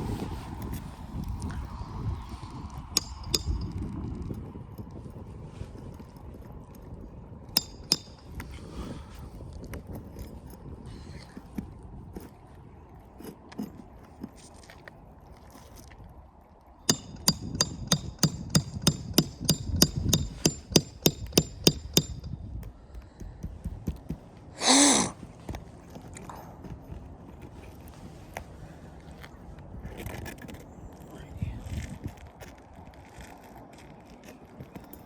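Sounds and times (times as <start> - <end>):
hammer striking metal: 3.0 - 3.8, 7.6 - 8.4, 16.9 - 22.4.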